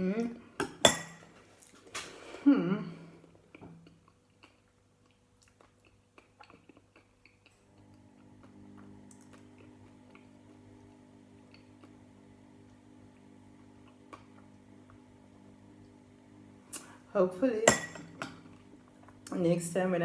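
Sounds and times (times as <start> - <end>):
spoon clinking against a bowl: 17.6 - 18.4.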